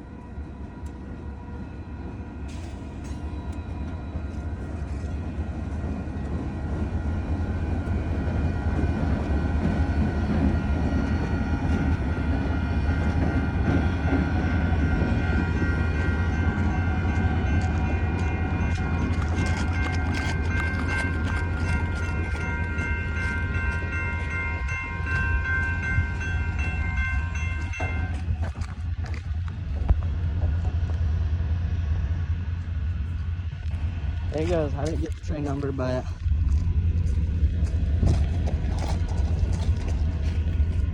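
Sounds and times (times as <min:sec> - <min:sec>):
freight train rumbling past: 0:00.0 - 0:40.9
train wheel clicks: 0:17.6 - 0:25.3.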